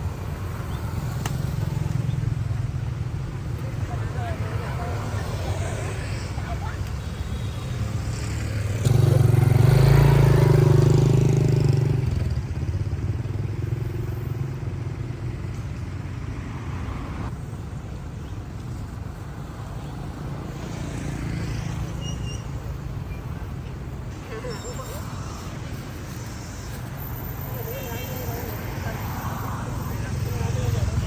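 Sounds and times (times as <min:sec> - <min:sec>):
road noise: 0:00.0 - 0:31.0.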